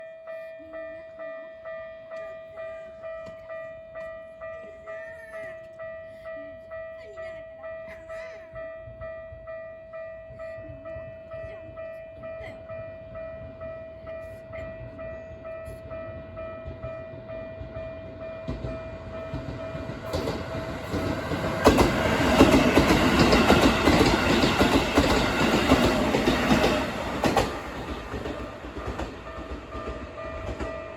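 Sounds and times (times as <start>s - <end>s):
train wheels clattering on rails: 14.8s - 30.9s.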